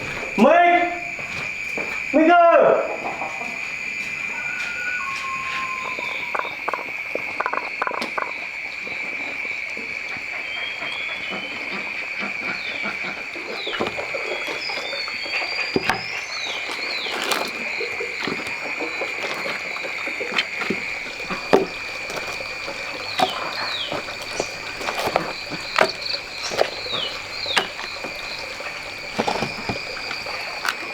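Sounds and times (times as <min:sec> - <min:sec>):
frogs calling in chorus: 0:00.0 - 0:30.9
short chirping calls: 0:03.1 - 0:08.3, 0:20.8 - 0:30.7.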